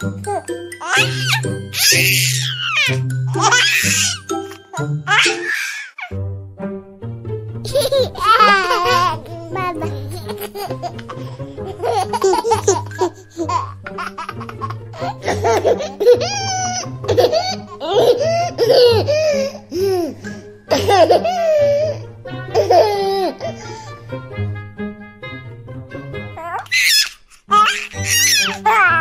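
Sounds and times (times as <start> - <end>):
background music with steady bass: 0.0 - 26.7.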